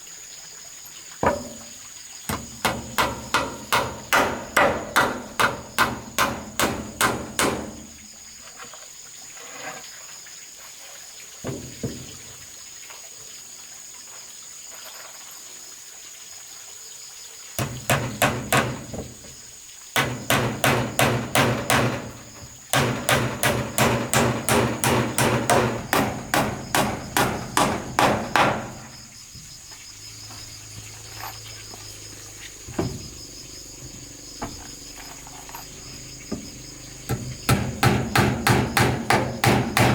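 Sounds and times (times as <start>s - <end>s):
insects chirring: 0.0s - 39.9s
hammer blows on wood: 2.3s - 7.9s, 17.6s - 19.2s, 20.0s - 29.0s, 37.1s - 39.9s.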